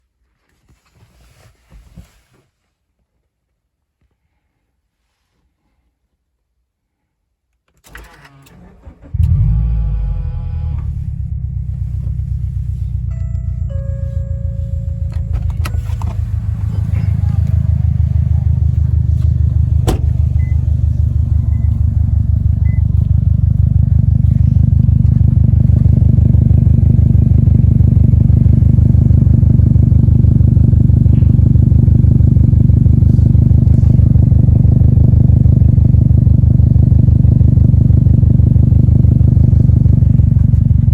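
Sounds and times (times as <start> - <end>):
car engine idling: 8.6 - 40.9.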